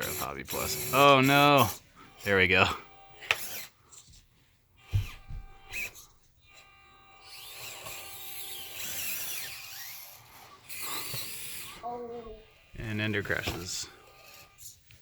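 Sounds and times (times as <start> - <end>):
electric motor and gears whining: 0.0 - 4.0, 4.8 - 15.0.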